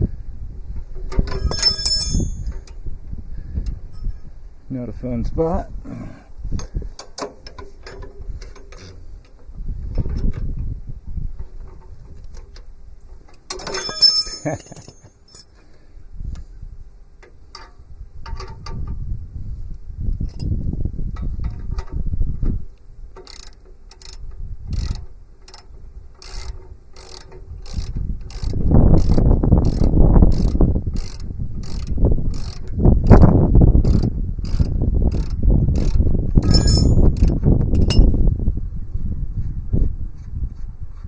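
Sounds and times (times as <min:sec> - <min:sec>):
low handling clatter: 0:13.4 - 0:15.4.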